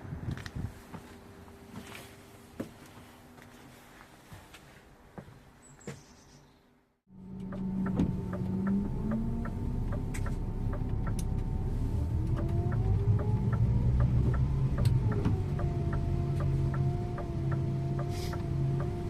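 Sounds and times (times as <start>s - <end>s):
bus diesel engine accelerating: 7.1s - 19.0s
turn signal clicking: 7.3s - 19.0s.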